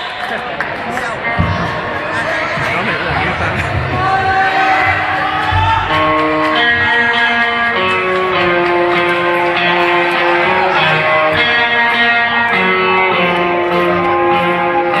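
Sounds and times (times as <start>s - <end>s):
guitar-led live band music: 1.1s - 15.0s.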